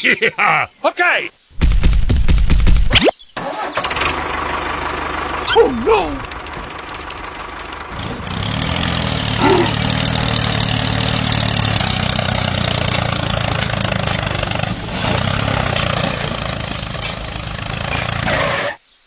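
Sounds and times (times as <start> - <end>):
small tractor engine running: 3.4 - 18.6.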